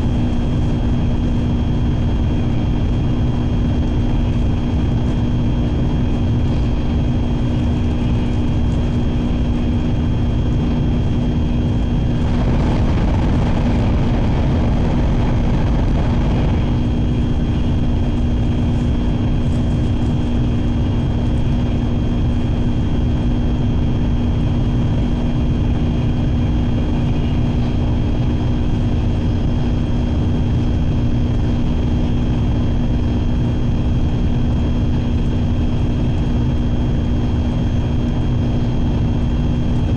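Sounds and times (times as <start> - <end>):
train interior rumble: 0.0 - 30.5
loud rushing: 12.0 - 18.1.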